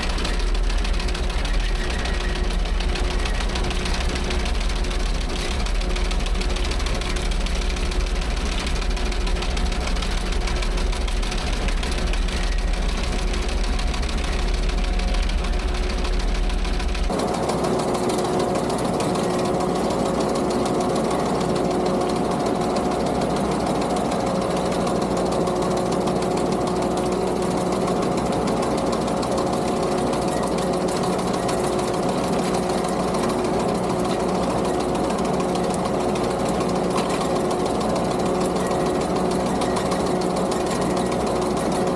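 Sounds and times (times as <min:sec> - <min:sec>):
sickle bar mower chattering: 0:00.0 - 0:17.1
skid steer engine running: 0:00.0 - 0:41.9.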